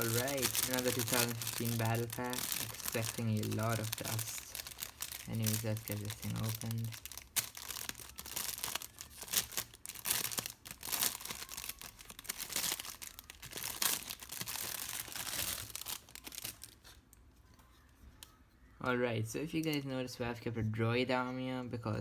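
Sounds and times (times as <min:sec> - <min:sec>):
sharp crackles: 0:00.0 - 0:16.8
packaging crinkling and tearing: 0:00.0 - 0:17.2.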